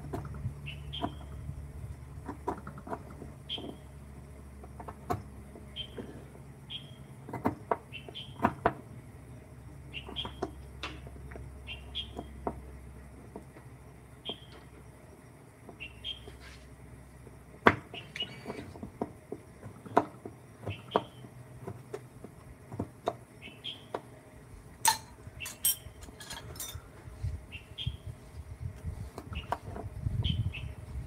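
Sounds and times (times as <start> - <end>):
sharp knocks and clicks of tools: 24.8 - 26.8.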